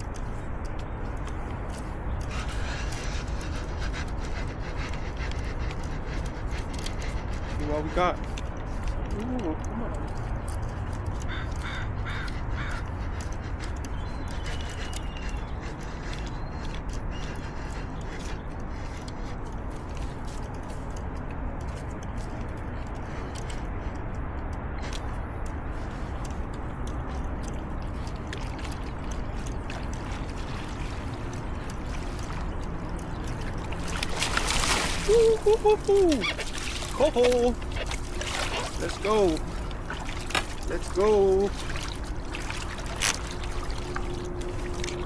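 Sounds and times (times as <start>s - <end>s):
small clicks and ticks: 0.0s - 45.0s
bird harsh calls: 11.1s - 19.3s, 29.2s - 42.1s
river water rushing: 28.4s - 45.0s.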